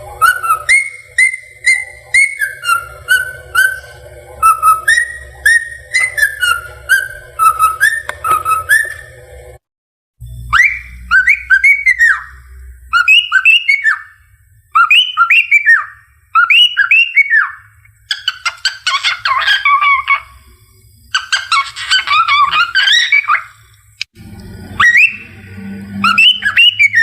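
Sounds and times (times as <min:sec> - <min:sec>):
cockatiel whistling: 0:00.2 - 0:09.2, 0:10.5 - 0:20.3, 0:21.1 - 0:23.6, 0:24.8 - 0:25.4, 0:26.0 - 0:27.0
cockatiel chattering warble: 0:18.1 - 0:20.4, 0:21.1 - 0:23.6.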